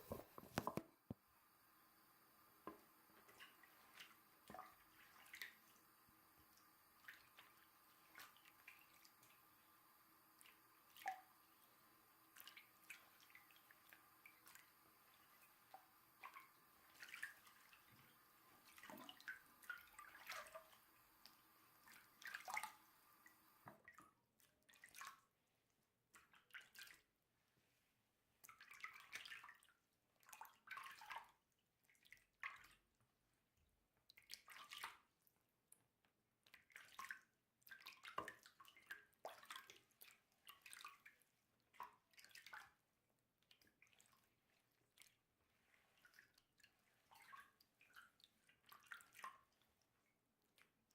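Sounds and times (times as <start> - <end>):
water drips and splashes: 3.2 - 9.4, 10.4 - 11.5, 12.3 - 24.1, 28.4 - 32.8, 34.1 - 35.1, 36.5 - 42.8, 43.4 - 50.8.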